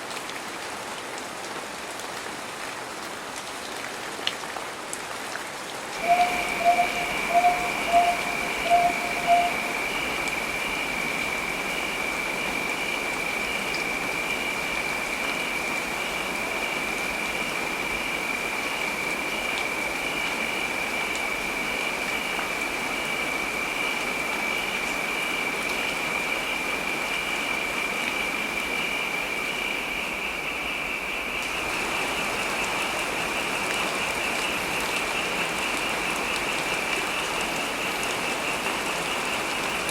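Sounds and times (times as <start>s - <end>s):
heavy rain: 0.0s - 39.9s
high-pitched tone: 6.0s - 9.8s.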